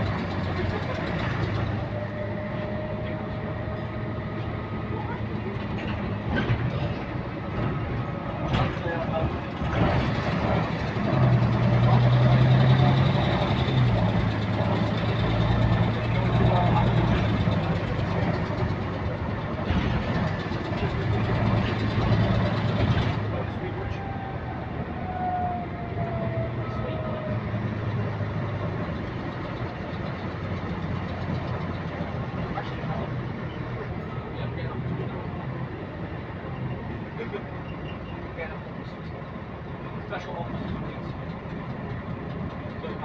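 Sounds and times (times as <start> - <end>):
repetitive engine clicking: 0.0 - 2.0, 8.5 - 23.4, 27.7 - 33.0, 40.6 - 43.0
bus diesel engine running: 0.0 - 43.0.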